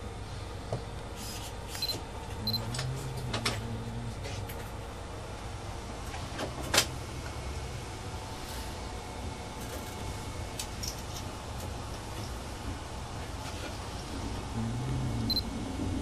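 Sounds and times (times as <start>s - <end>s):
train rumbling in cab: 2.0s - 16.0s.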